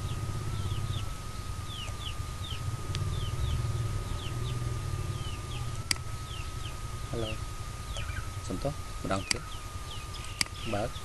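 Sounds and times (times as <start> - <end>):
birds chirping: 0.0 - 11.0
low steady hum: 0.0 - 11.0
sharp click: 9.2 - 9.4, 10.2 - 10.6.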